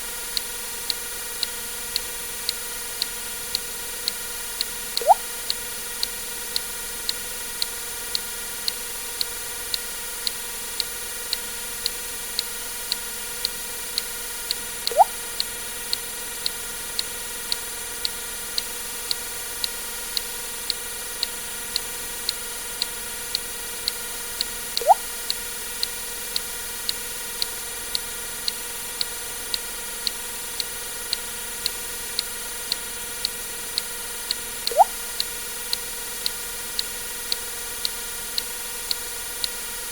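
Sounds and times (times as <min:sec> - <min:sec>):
sharp ticks: 0:00.3 - 0:39.9
water drip plop: 0:05.0 - 0:05.3, 0:14.9 - 0:15.2, 0:24.8 - 0:25.1, 0:34.7 - 0:35.0.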